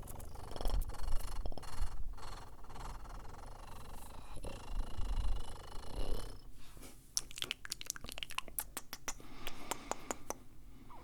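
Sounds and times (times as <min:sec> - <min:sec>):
wet mouth clicks and pops: 0:07.2 - 0:10.4.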